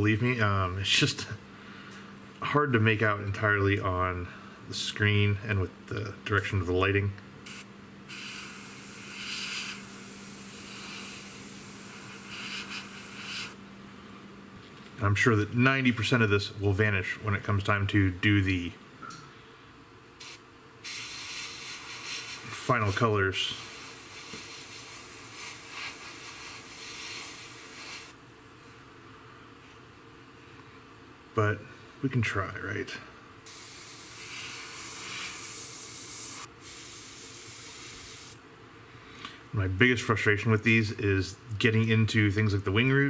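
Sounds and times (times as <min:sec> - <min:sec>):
low steady hum: 0:00.0 - 0:43.0
airbrush spraying hiss: 0:07.4 - 0:13.6, 0:20.2 - 0:28.2, 0:33.5 - 0:38.4.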